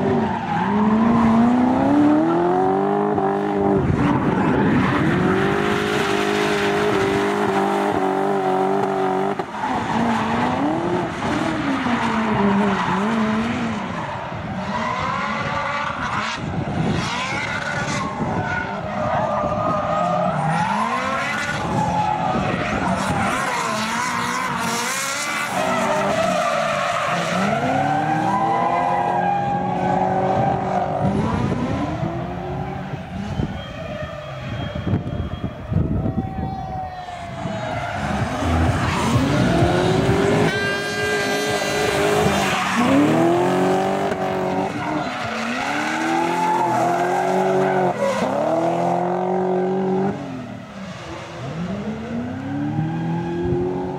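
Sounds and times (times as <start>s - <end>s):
tyres skidding and squealing: 0.0s - 53.9s
car engine revving hard: 38.0s - 50.4s.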